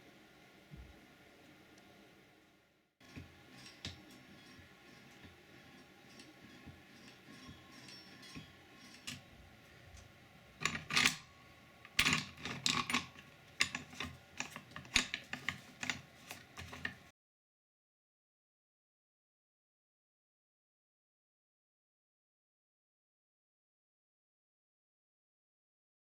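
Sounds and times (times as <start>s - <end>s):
drill stand parts clicking: 10.0s - 17.1s.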